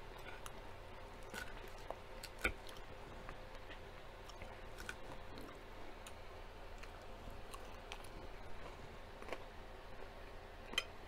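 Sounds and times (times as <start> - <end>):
person chewing crunchy salad: 0.0 - 10.9.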